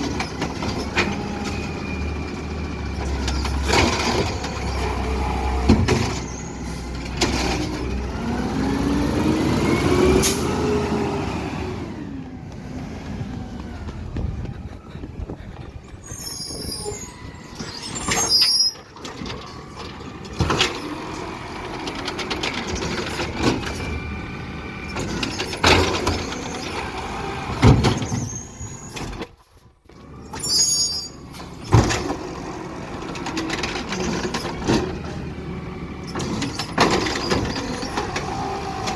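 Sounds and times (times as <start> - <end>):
garbage truck engine revving: 0.0 - 29.2, 29.9 - 38.9
hissing and squealing: 15.7 - 19.0, 30.3 - 31.2.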